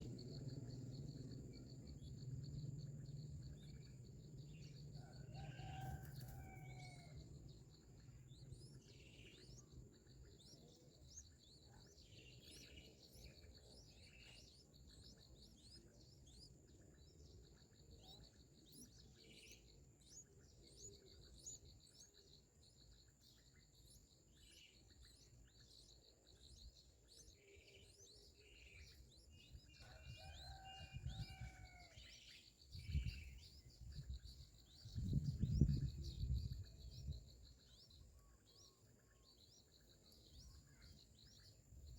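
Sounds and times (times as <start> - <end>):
faint bird chirping: 0.0 - 41.9.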